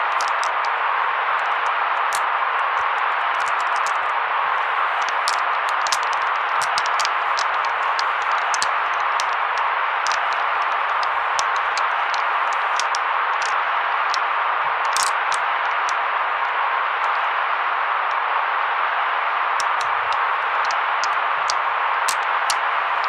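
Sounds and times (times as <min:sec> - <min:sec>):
scattered crackles and ticks: 0:00.0 - 0:00.8, 0:01.4 - 0:14.3, 0:14.9 - 0:16.0, 0:19.6 - 0:23.0
white noise hiss: 0:00.0 - 0:23.0.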